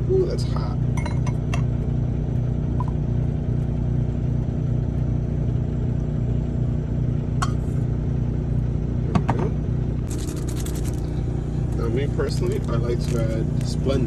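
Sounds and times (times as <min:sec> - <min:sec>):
truck diesel engine idling: 0:11.0 - 0:14.0.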